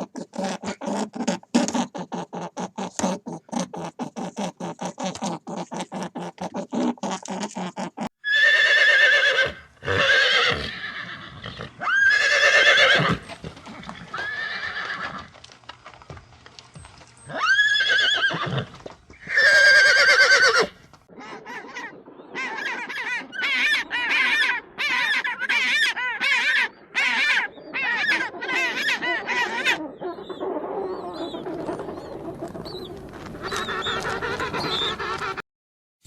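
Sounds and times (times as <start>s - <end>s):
bird calls: 21.2s - 35.4s.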